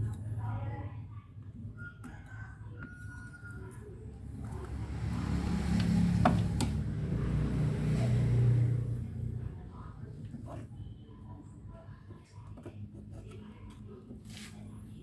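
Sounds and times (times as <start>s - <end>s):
low engine-like rumble: 3.6s - 12.4s.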